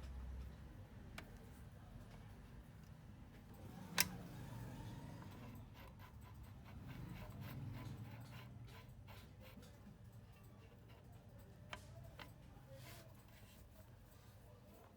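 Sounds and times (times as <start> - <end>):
light ticks and taps: 0.0 - 1.5, 10.4 - 12.4.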